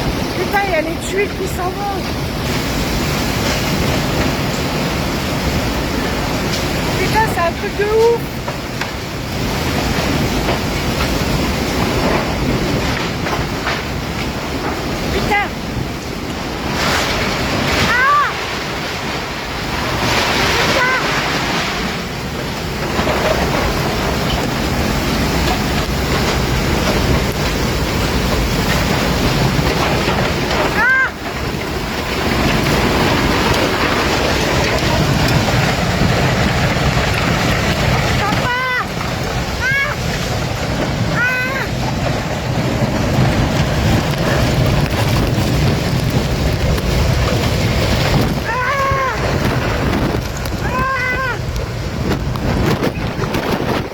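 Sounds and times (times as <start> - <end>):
strong wind rushing: 0.0 - 53.9
wind buffeting microphone: 0.0 - 53.9
pitched wail: 48.3 - 49.5.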